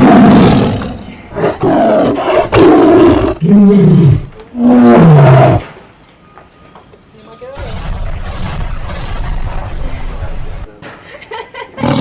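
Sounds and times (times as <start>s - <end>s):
tiger roaring: 0.0s - 5.7s.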